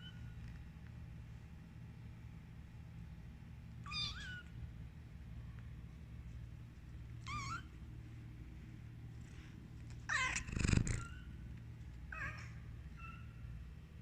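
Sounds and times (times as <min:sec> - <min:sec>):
steady low hum: 0:00.0 - 0:14.0
cat meowing: 0:03.9 - 0:04.4, 0:10.1 - 0:11.2.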